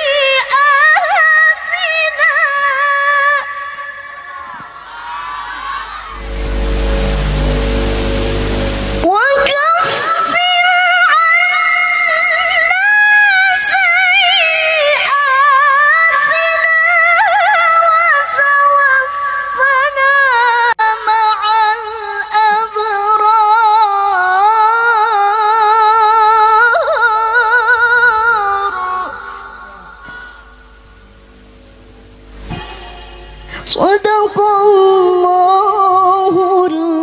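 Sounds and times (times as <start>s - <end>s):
woman chanting melodically: 32.5s - 37.0s.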